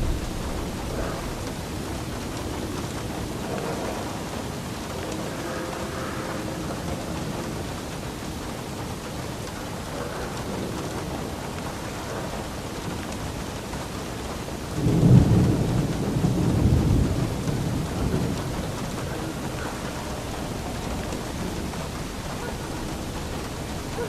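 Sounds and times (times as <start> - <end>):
steady rain: 0.0 - 24.0
thunder rumbling: 0.0 - 24.0.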